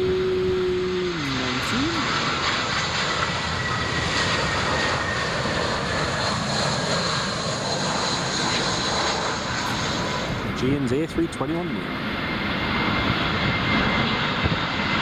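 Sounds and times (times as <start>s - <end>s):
jet airliner engines passing: 0.0s - 15.0s.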